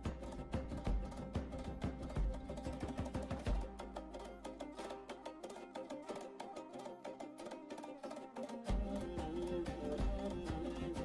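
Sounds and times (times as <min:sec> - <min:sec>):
instrumental music with deep bass: 0:08.7 - 0:11.0.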